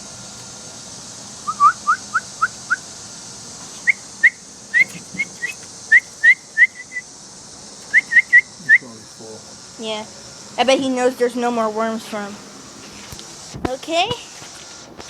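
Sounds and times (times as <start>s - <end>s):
person whistling bird chirps: 1.4s - 2.8s, 3.8s - 7.1s, 7.9s - 9.0s.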